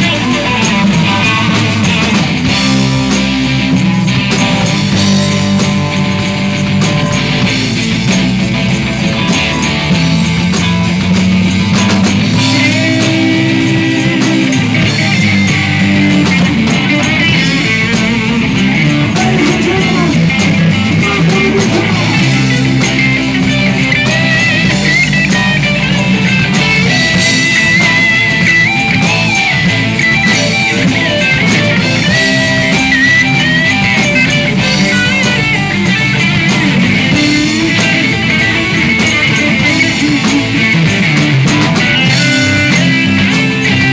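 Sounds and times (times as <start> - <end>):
bending lead guitar line: 0.0 - 43.9
live rock band playing: 0.0 - 43.9.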